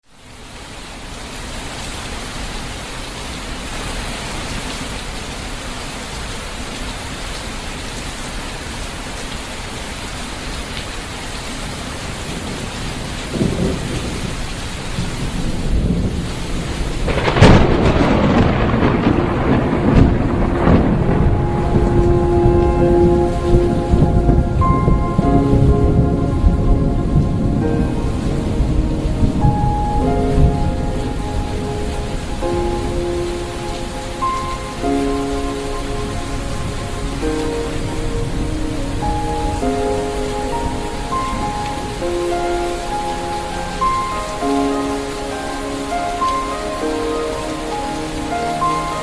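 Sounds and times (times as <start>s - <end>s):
steady rain: 0.0s - 49.0s
thunder rumbling: 12.1s - 44.9s.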